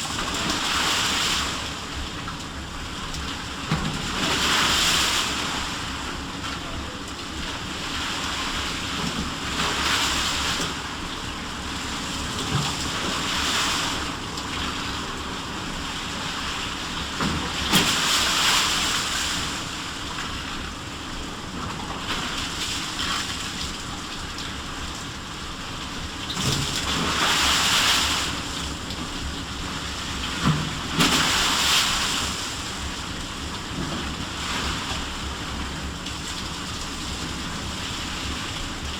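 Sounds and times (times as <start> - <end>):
sea waves washing in: 30.7 - 33.1.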